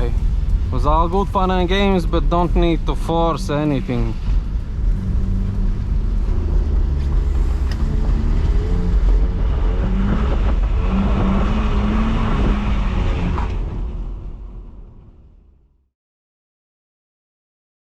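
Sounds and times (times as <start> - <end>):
steady hiss: 0.0 - 8.4
car engine running: 0.0 - 15.0.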